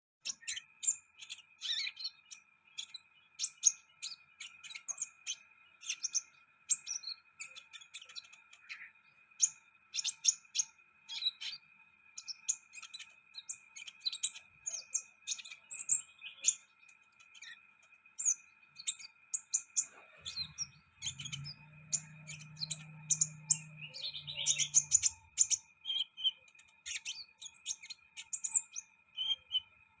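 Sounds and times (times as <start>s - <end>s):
bird chirping rapidly: 0.2s - 17.6s, 18.2s - 29.8s.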